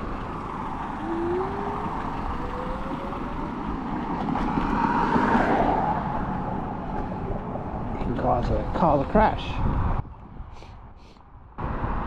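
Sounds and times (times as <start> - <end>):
wind on microphone: 0.1 - 12.0
electric motor whining: 0.8 - 3.6.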